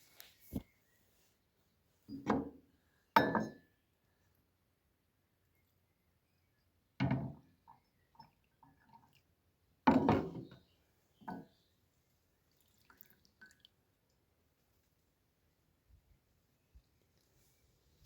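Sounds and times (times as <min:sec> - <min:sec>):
liquid pouring into a cup: 0:12.5 - 0:13.8.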